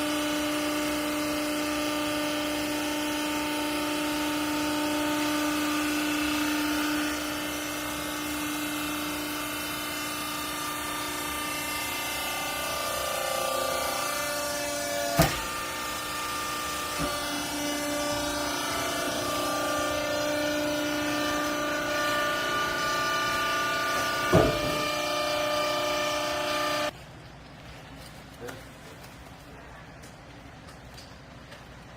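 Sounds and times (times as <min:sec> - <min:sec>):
baler machine whine: 0:00.0 - 0:26.9
sharp knocks: 0:24.2 - 0:25.0.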